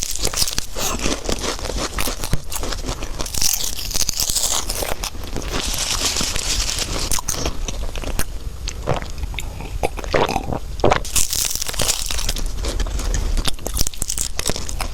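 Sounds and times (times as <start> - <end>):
chewing crisp pastry: 0.0 - 14.9
wet mouth sounds: 0.6 - 2.8, 7.1 - 11.1.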